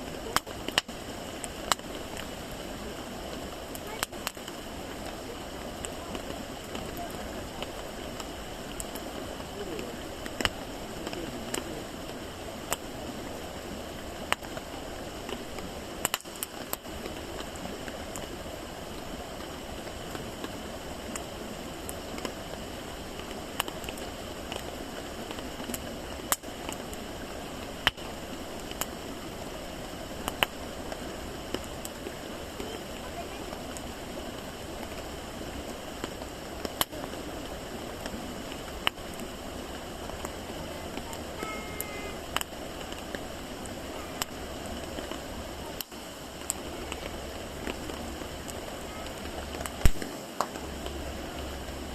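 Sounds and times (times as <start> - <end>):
campfire crackling hiss: 0.0 - 51.9
sharp pops of fire: 0.2 - 2.3, 3.7 - 5.2, 10.2 - 11.7, 14.2 - 18.2, 23.1 - 27.0, 27.8 - 28.9, 30.2 - 32.0, 36.0 - 37.0, 49.2 - 50.7.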